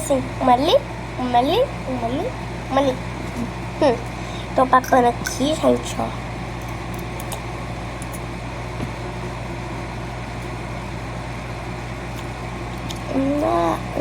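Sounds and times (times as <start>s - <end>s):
person speaking: 0.0s - 6.3s, 13.0s - 14.0s
low droning hum: 0.0s - 14.0s.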